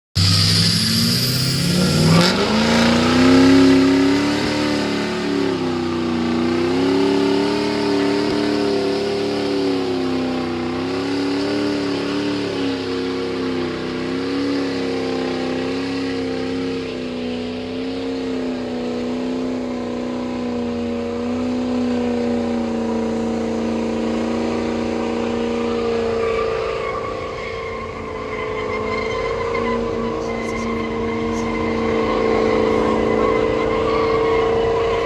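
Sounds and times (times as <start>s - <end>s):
diesel engine revving high: 0.0s - 35.0s.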